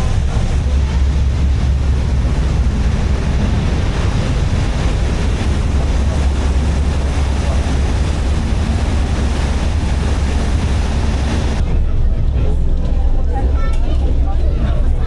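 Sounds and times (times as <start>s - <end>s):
water rushing: 0.0s - 11.6s
wind rushing: 0.0s - 11.7s
low engine drone: 0.0s - 13.3s.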